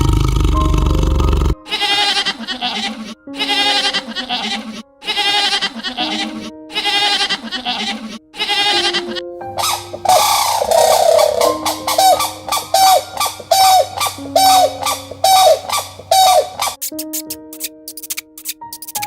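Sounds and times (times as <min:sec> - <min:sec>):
quavering bleating calls: 0:01.6 - 0:16.8
steady musical notes: 0:09.0 - 0:17.9.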